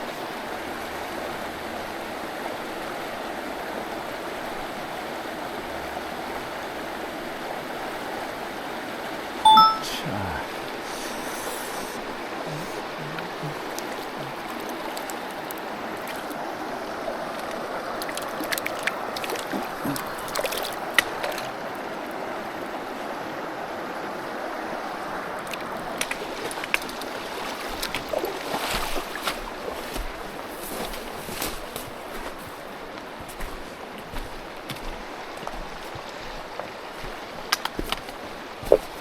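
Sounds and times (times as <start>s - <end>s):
stream rushing over rocks: 0.0s - 39.0s
sharp clicks and splashes: 13.2s - 16.4s, 17.3s - 21.6s, 25.4s - 32.5s, 33.3s - 39.0s.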